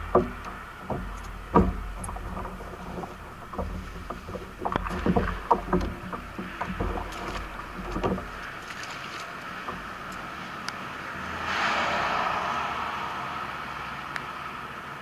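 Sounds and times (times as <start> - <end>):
paddle knocking plastic hull: 0.0 - 10.6
paddle splashing water: 0.0 - 12.7.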